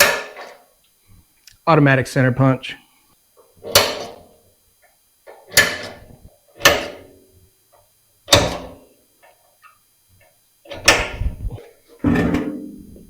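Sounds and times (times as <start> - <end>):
center punch snapping against metal: 3.7 - 4.2.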